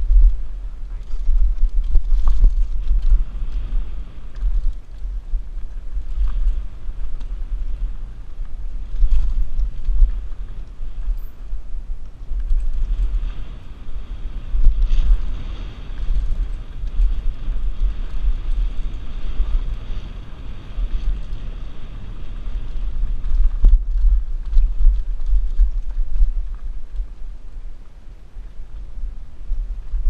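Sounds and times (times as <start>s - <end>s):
bike rattling over dirt trail: 0.0s - 30.0s
wind buffeting microphone: 0.0s - 30.0s.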